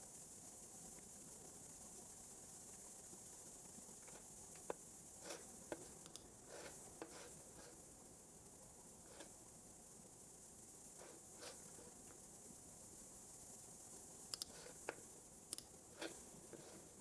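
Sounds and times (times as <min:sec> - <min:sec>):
steady high hiss: 0:00.0 - 0:17.0
computer keys and mouse clicks: 0:14.3 - 0:14.6.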